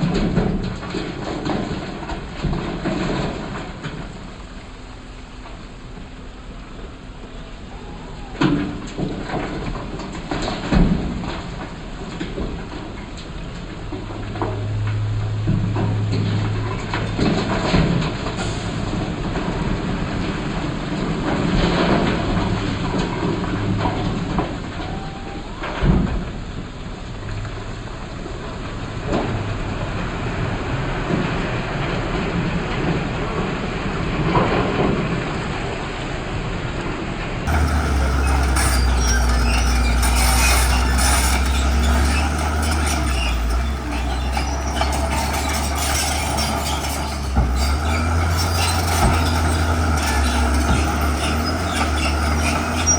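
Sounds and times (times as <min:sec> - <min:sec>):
deep engine drone: 0:13.5 - 0:19.2, 0:37.5 - 0:52.9
bulldozer diesel engine: 0:37.5 - 0:52.9.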